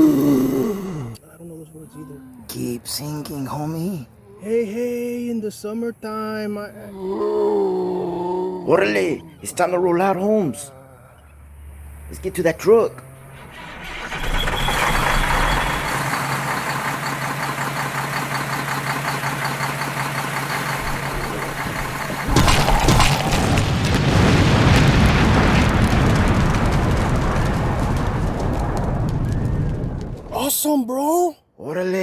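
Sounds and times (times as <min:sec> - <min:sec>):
vehicle engine running: 0:13.0 - 0:23.4
sudden loud burst: 0:22.3 - 0:30.5.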